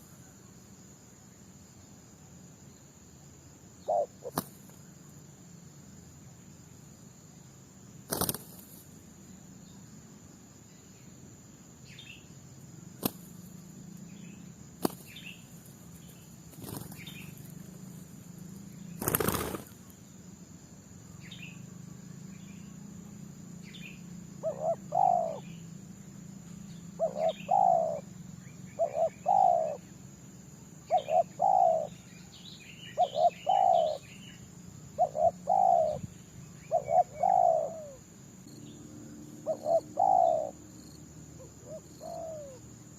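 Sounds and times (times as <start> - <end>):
high insect drone: 0.0 - 42.9
dove cooing: 3.8 - 4.4, 24.4 - 25.4, 27.0 - 28.0, 28.8 - 29.8, 30.9 - 31.9, 33.0 - 34.1, 35.0 - 38.0, 39.4 - 40.6, 41.4 - 42.6
small birds chirping: 3.8 - 5.3, 8.0 - 10.0, 11.8 - 20.2, 21.0 - 42.9.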